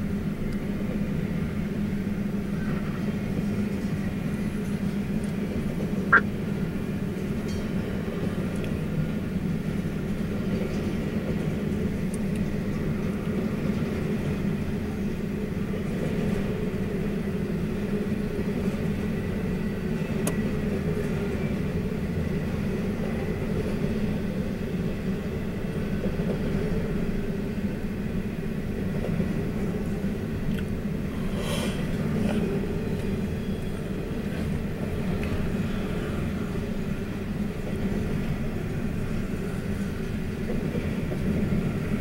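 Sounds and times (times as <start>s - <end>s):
train wheels on rails: 0.0s - 42.0s.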